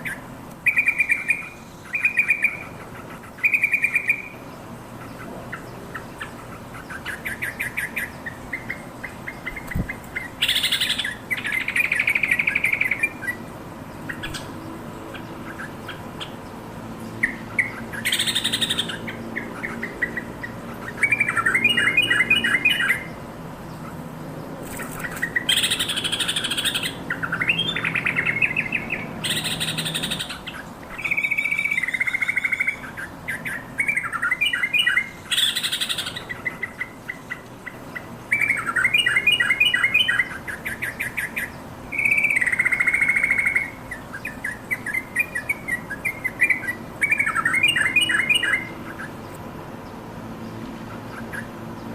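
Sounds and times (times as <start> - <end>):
bulbul chattering and trilling: 5.0 - 13.4, 17.0 - 24.0, 24.6 - 49.4.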